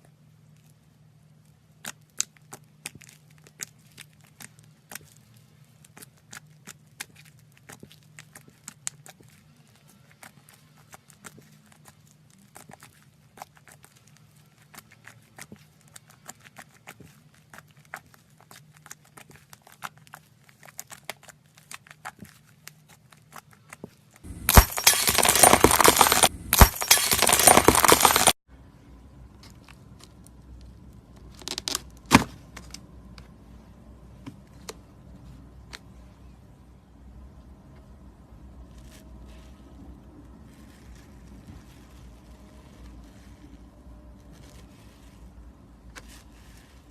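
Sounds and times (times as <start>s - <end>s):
slime crinkling and crackling: 1.4s - 24.2s, 38.7s - 46.9s.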